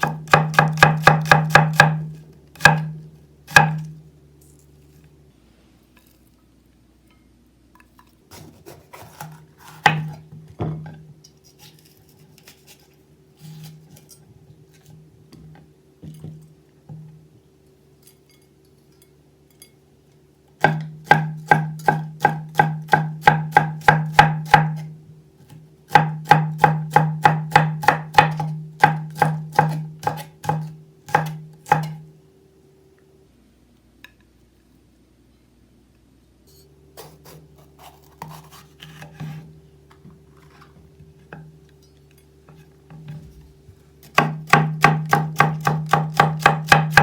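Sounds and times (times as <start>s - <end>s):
knife chopping on cutting board: 0.0s - 3.9s, 8.3s - 10.2s, 20.6s - 24.9s, 25.9s - 32.0s, 37.0s - 39.4s, 44.0s - 47.0s.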